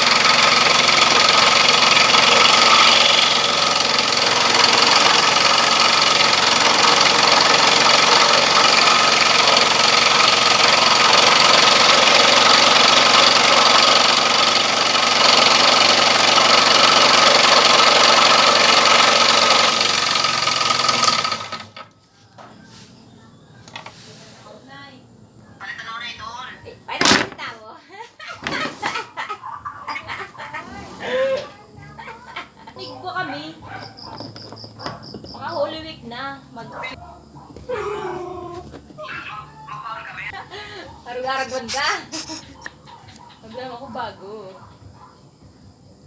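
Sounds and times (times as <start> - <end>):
scroll saw cutting wood: 0.0 - 21.8, 41.3 - 42.8.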